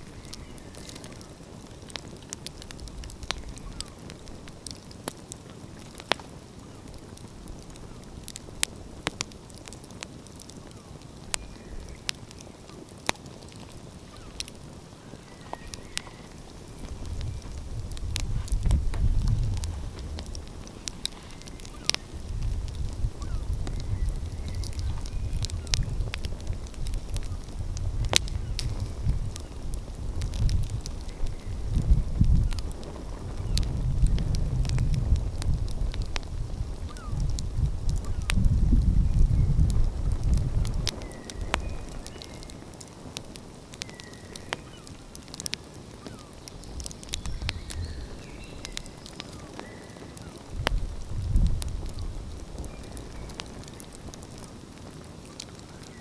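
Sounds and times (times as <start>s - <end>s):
wind rumble on microphone: 0.0s - 4.6s, 13.7s - 43.4s, 46.1s - 56.0s
wood fire crackling: 0.0s - 56.0s.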